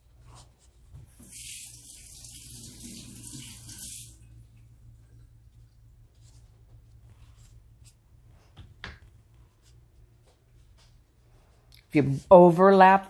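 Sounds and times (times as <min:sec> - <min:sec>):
water running: 0:01.0 - 0:06.1.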